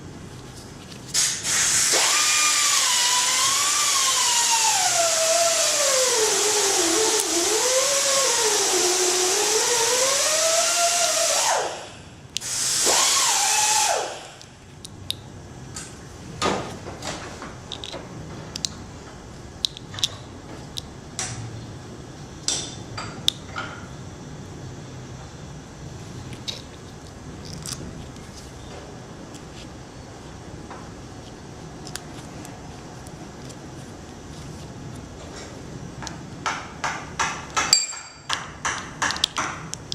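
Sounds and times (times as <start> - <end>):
loud hiss with wavering whine: 1.1 - 14.6.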